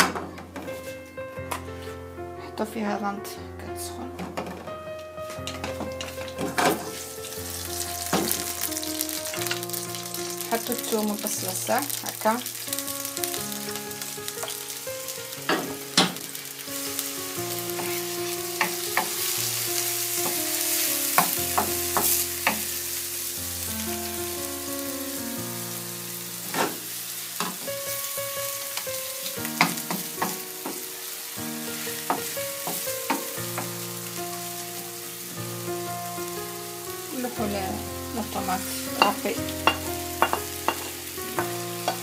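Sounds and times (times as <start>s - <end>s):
garlic and onion sizzling in oil: 5.3s - 42.0s
wooden spoon knocking on pan: 5.4s - 6.9s, 8.0s - 8.7s, 15.5s - 16.3s, 18.6s - 19.2s, 20.2s - 22.7s, 29.5s - 30.9s, 32.0s - 33.8s, 39.0s - 42.0s.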